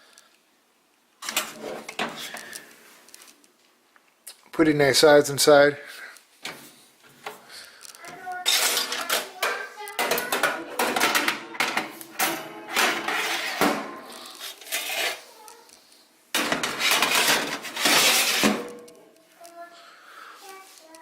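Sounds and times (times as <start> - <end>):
metal oven rack clattering: 8.4 - 15.1, 16.4 - 18.9.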